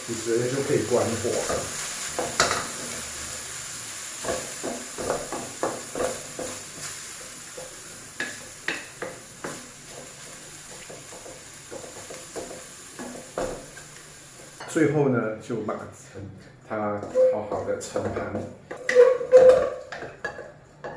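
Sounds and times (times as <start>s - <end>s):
food sizzling: 0.0s - 15.0s
spatula scraping in a pan: 17.0s - 20.9s.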